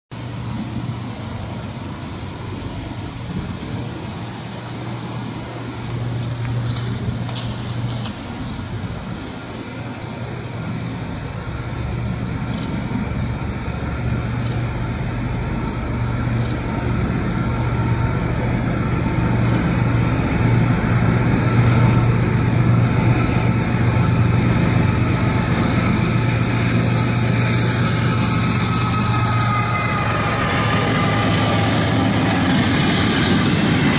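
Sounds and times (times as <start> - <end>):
diesel locomotive engine drone: 0.1 - 33.9
train wheels rumbling on rails: 0.1 - 33.9.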